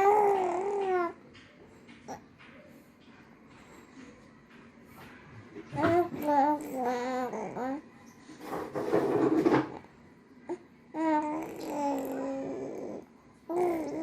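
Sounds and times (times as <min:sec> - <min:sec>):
baby babbling: 0:00.0 - 0:01.2, 0:05.8 - 0:07.8, 0:10.5 - 0:14.0.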